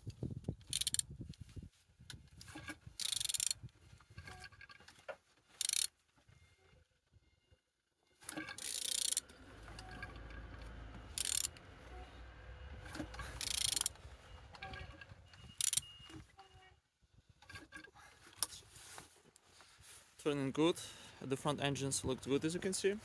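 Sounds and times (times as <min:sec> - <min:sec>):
engine turned over by hand: 0:08.2 - 0:15.9.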